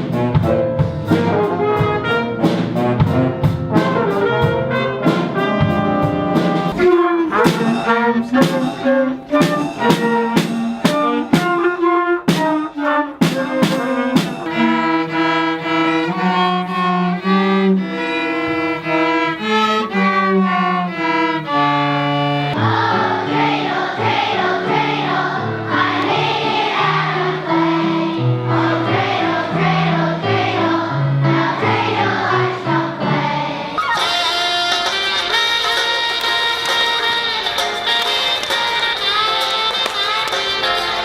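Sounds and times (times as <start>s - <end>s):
choir singing: 13.8s - 16.2s, 22.5s - 34.0s
bowed strings: 14.2s - 22.6s.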